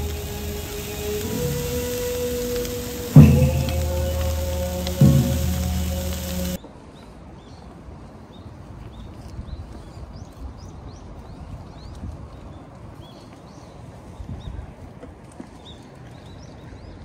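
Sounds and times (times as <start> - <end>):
low outdoor background rumble: 0.0 - 6.6.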